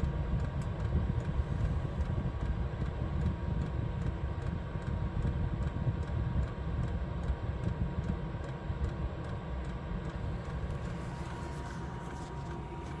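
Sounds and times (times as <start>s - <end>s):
diesel heater rumbling: 0.0s - 13.0s
faint regular ticking: 2.0s - 11.2s.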